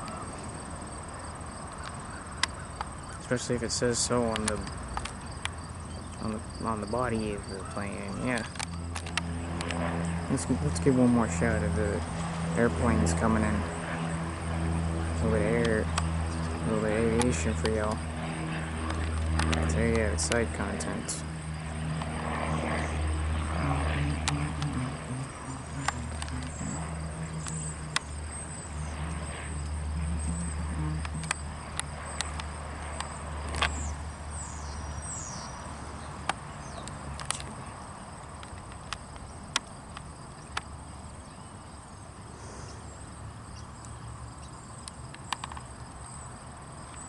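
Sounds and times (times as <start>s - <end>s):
insects chirring: 0.0s - 47.0s
low engine drone: 0.0s - 47.0s
sharp ticks: 1.7s - 35.4s, 36.2s - 40.8s, 43.8s - 45.8s.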